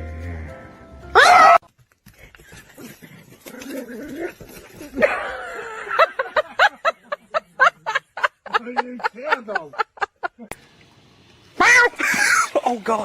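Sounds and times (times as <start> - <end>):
person laughing: 4.8 - 10.5.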